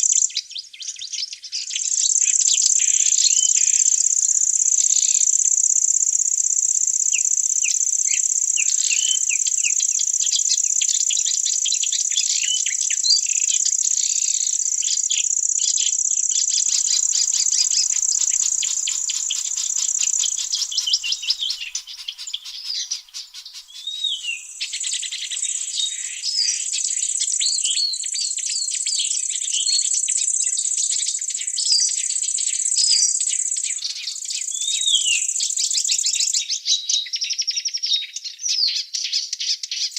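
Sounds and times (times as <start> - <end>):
high-pitched insect trill: 1.8 - 36.4
birds chirping and calling: 16.3 - 27.8.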